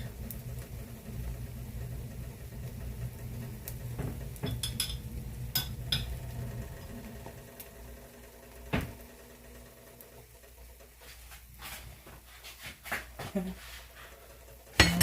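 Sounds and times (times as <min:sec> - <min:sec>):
steady low hum: 0:00.0 - 0:15.0
utensils clinking on dishes: 0:04.4 - 0:06.1, 0:14.8 - 0:15.0.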